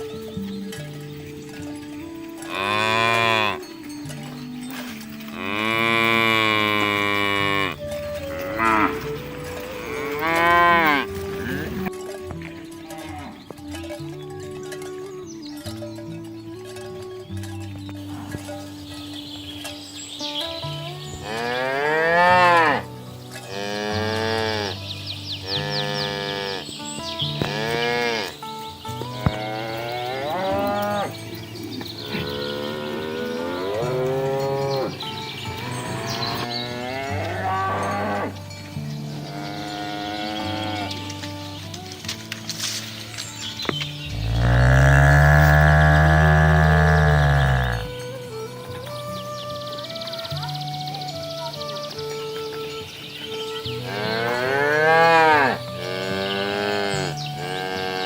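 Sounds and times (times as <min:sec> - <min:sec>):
cows mooing: 0:01.5 - 0:13.8, 0:21.1 - 0:26.7, 0:27.3 - 0:42.4, 0:44.1 - 0:48.1, 0:53.7 - 0:58.0.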